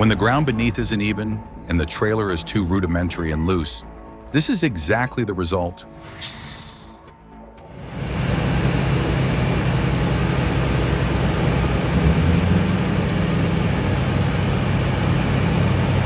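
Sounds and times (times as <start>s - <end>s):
heavy diesel engine running: 7.6s - 16.0s.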